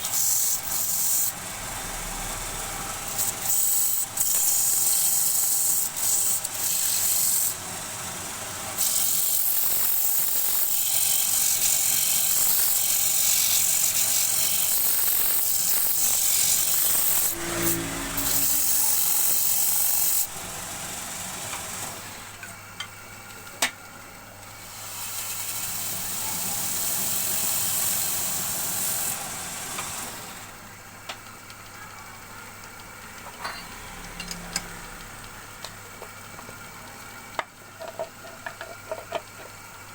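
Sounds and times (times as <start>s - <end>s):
lathe motor hum: 10.8s - 22.4s.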